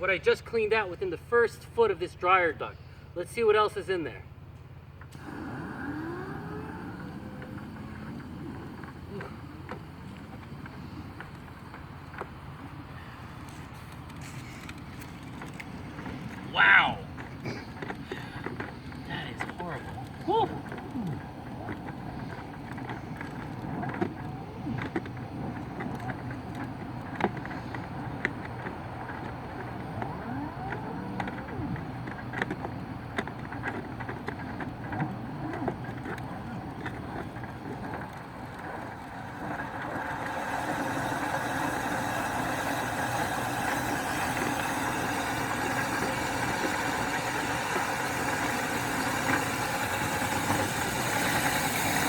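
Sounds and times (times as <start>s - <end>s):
motor humming: 5.0s - 52.0s
clicks and handling noise: 7.0s - 16.5s, 17.1s - 40.8s.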